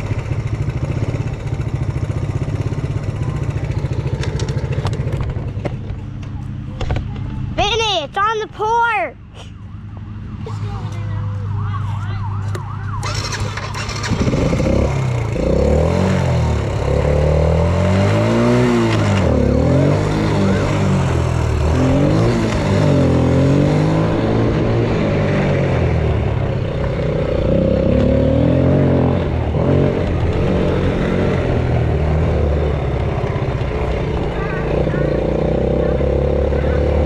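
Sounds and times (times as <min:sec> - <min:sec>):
quad engine revving: 0:12.9 - 0:37.0.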